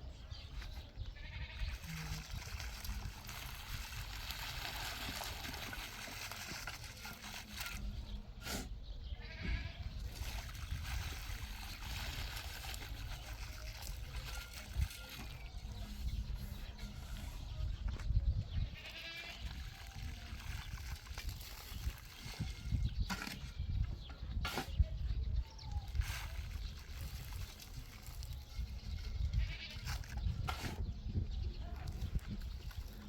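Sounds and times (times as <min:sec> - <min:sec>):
livestock bleating: 0:01.2 - 0:02.2, 0:09.1 - 0:09.9, 0:18.7 - 0:19.5, 0:29.3 - 0:29.8.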